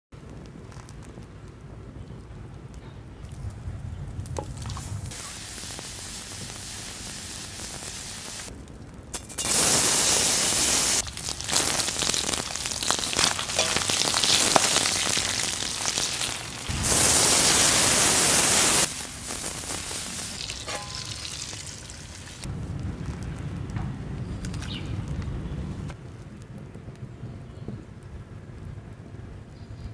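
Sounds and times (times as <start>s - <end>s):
pork sizzling in a wok: 4.5s - 8.5s, 9.2s - 22.5s
loud hiss: 5.0s - 8.5s, 9.2s - 22.5s.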